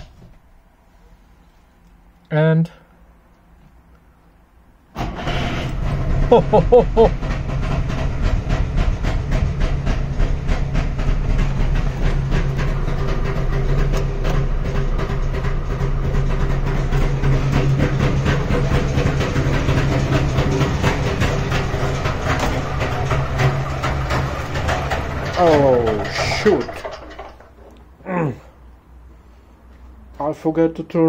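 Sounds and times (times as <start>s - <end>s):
two-stroke engine running: 5.0s - 28.3s.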